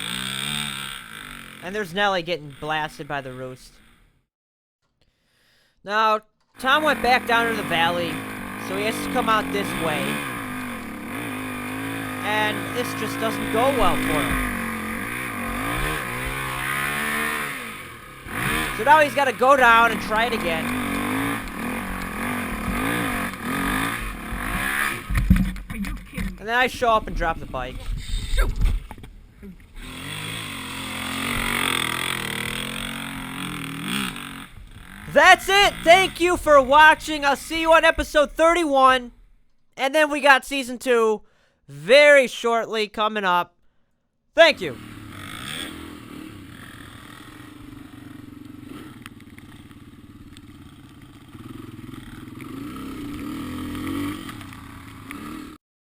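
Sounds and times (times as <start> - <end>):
dirt bike engine revving: 0.0 - 2.8, 6.6 - 38.9, 44.5 - 55.6.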